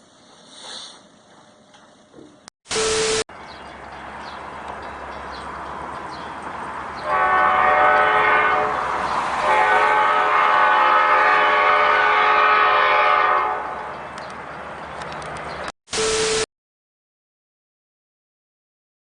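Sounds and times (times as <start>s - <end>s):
train air horn blasts: 7.0s - 13.9s.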